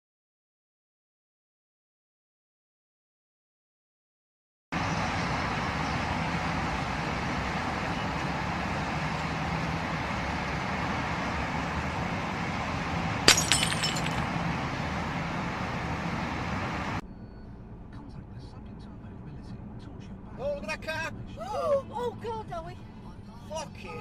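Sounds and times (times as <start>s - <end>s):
car driving: 4.8s - 17.0s
collision impact: 13.3s - 14.3s
glass shattering: 13.3s - 14.3s.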